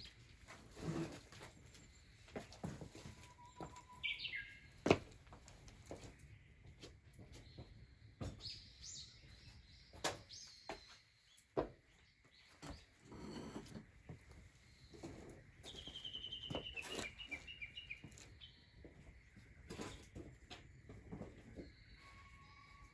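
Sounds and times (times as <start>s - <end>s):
birds chirping and singing: 3.1s - 5.0s, 14.6s - 20.1s.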